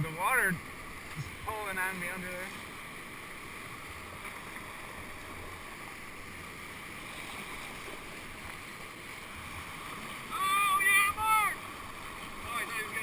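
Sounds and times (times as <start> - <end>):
whitewater rushing: 0.0 - 13.0.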